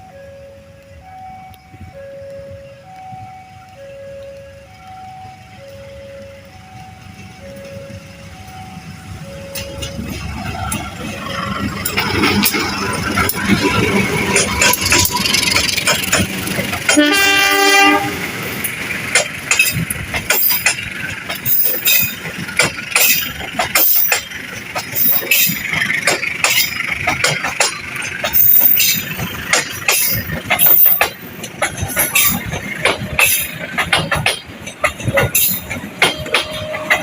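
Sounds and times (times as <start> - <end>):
train wheels clattering: 7.0 - 37.0
train horn: 16.9 - 18.5, 36.1 - 37.0.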